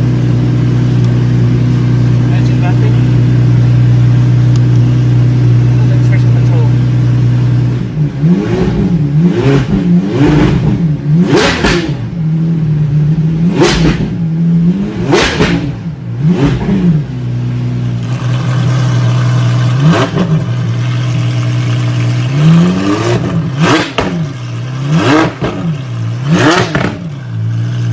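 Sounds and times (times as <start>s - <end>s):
car engine idling and revving: 0.0s - 27.9s.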